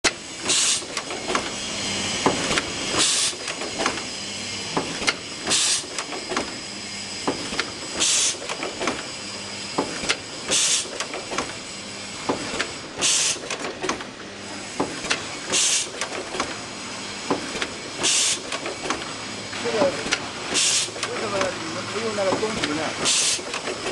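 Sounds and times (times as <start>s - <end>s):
machine clicking and knocking: 0.0s - 1.6s, 2.2s - 4.1s, 4.7s - 6.6s, 7.2s - 11.6s, 12.2s - 23.9s
low machine hum: 0.1s - 23.9s
short sharp hiss: 0.4s - 0.9s, 3.0s - 3.5s, 5.5s - 6.0s, 8.0s - 8.4s, 10.5s - 11.0s, 13.0s - 13.5s, 15.5s - 16.0s, 18.0s - 18.5s, 20.5s - 21.0s, 23.0s - 23.5s.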